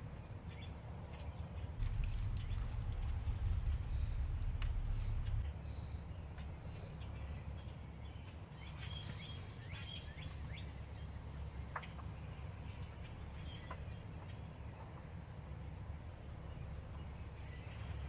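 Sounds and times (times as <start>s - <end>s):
low background rumble: 0.0s - 8.7s
birds chirping: 0.4s - 14.9s.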